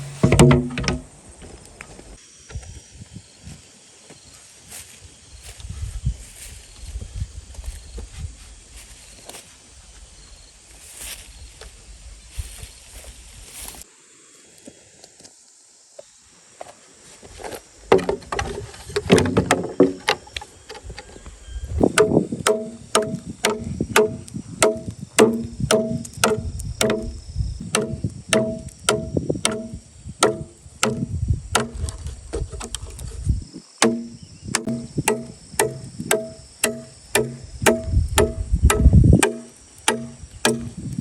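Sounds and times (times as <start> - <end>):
tool knocking on bamboo: 0.2 - 1.0, 17.9 - 18.4, 19.0 - 20.2, 21.8 - 32.9, 33.8 - 40.8.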